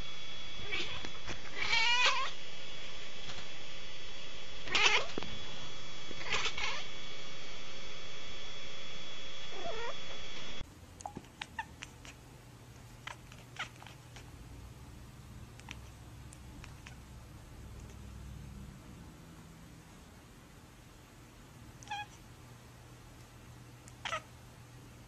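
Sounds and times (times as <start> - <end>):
cat yowling: 0.6 - 2.4, 4.6 - 5.2, 6.2 - 6.9, 9.5 - 10.0, 24.0 - 24.3.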